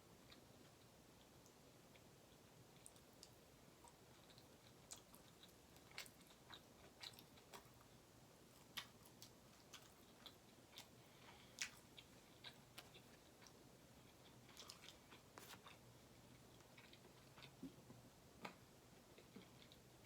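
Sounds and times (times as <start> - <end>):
person chewing: 2.8 - 7.9, 8.6 - 17.8.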